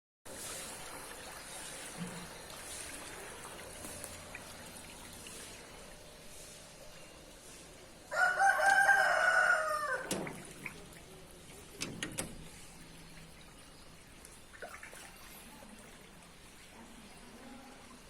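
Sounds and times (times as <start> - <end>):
rooster crowing: 8.1 - 10.2.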